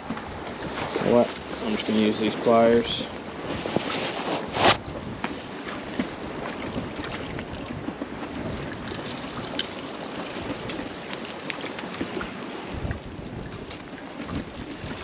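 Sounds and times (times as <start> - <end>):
water lapping: 5.4 - 15.0
wind buffeting microphone: 5.9 - 15.0
small clicks and taps: 8.7 - 11.8.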